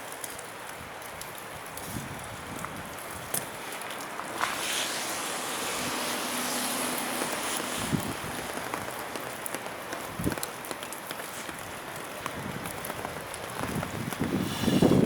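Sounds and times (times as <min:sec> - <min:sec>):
train rushing noise: 0:04.2 - 0:10.3.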